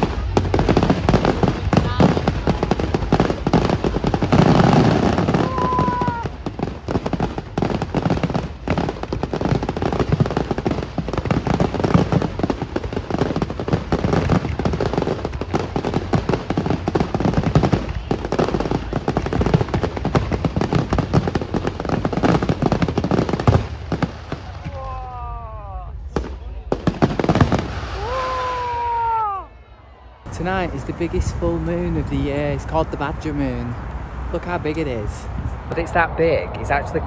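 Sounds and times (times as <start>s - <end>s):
fireworks bangs and crackles: 0.0s - 29.4s, 30.2s - 37.0s
firework whistle: 4.4s - 6.4s, 27.4s - 29.4s.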